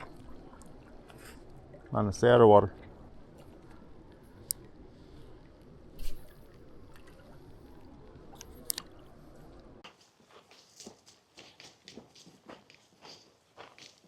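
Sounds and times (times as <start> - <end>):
water sloshing and splashing: 0.0 - 9.8.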